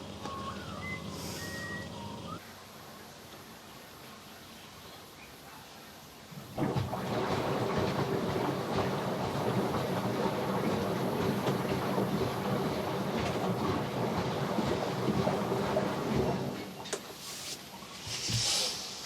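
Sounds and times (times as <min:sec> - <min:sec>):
washing machine spinning: 0:06.4 - 0:17.2.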